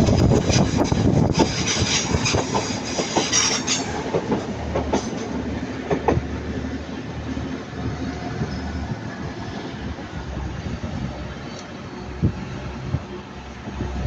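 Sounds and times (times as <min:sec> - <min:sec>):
train wheels clicking over rail joints: 0:00.0 - 0:06.4
train rumble: 0:00.0 - 0:14.0.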